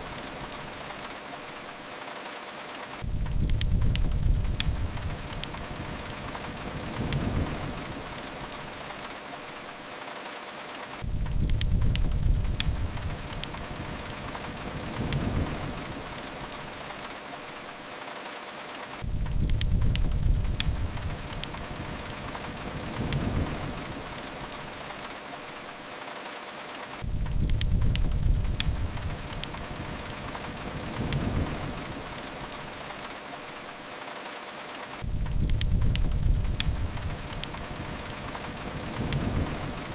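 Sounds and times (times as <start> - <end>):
rain hissing on a window: 0.0 - 39.9
wood fire crackling: 0.0 - 39.9
deep rumble: 35.0 - 37.8.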